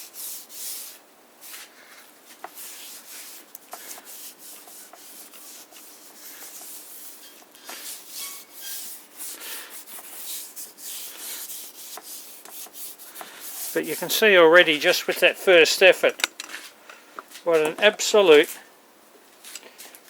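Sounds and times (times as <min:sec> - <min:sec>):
cloth wiping metal surface: 0:02.5 - 0:16.1.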